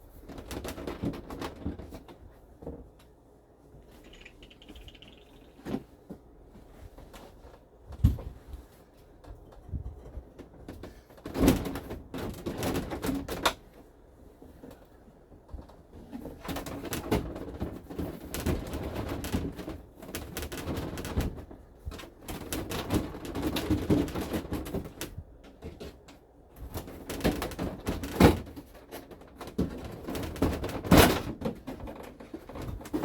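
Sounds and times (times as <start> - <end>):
clicks and creaks: 3.9 - 5.8.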